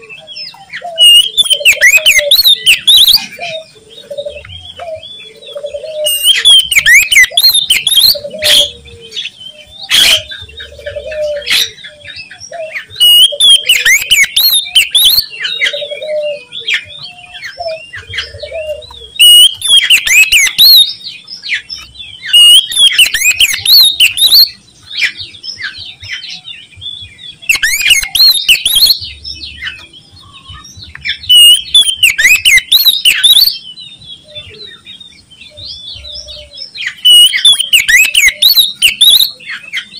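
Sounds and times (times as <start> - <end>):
bird singing whistles: 0.0 - 21.0, 21.8 - 39.9.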